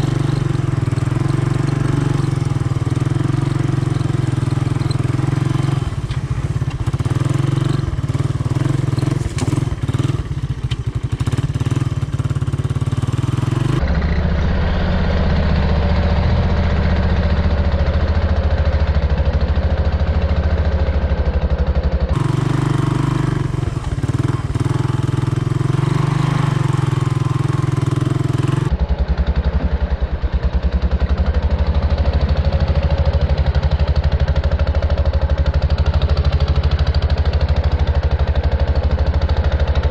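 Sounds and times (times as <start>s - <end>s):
three-wheeler engine running: 0.0s - 39.9s.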